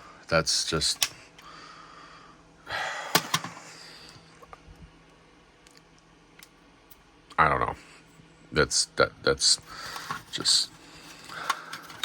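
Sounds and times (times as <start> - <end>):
plastic parts clicking: 11.2 - 12.0.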